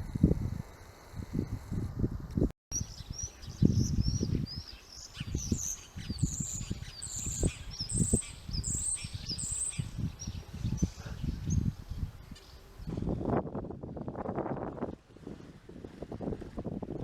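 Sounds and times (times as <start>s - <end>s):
small birds chirping: 2.7s - 12.9s
low rumbling and thumps: 10.1s - 17.0s.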